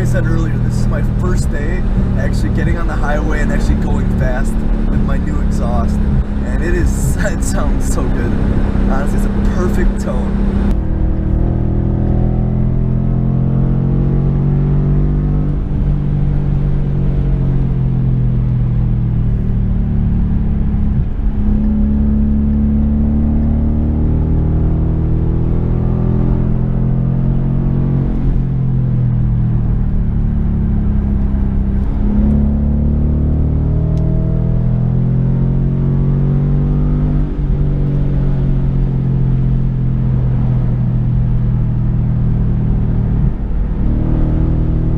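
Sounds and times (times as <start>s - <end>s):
car engine accelerating hard: 0.0s - 44.9s.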